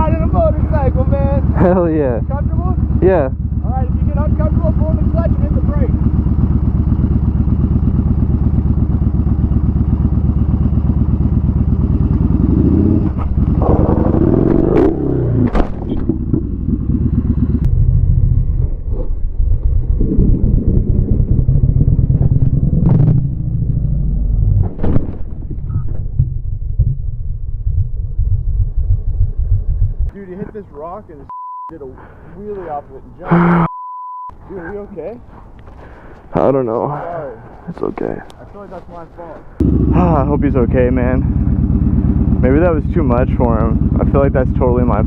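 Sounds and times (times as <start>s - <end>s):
motorcycle engine running: 0.0s - 24.6s, 26.2s - 30.9s, 39.5s - 45.0s
motorcycle crashing knocks and scrapes: 13.0s - 16.4s.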